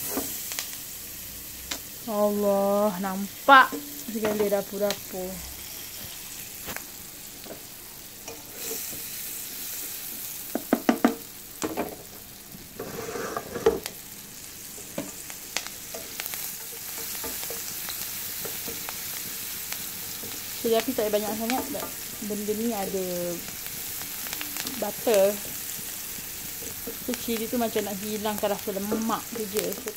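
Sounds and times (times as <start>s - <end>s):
onions sizzling in butter: 0.0s - 29.9s
spatula knocking and scraping pan: 3.7s - 4.6s.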